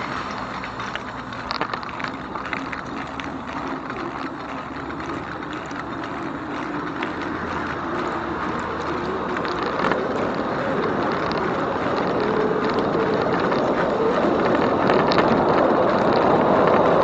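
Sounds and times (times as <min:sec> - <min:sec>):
bike rattles and clicks: 0:00.0 - 0:17.0
tyres rolling on pavement: 0:00.0 - 0:17.0.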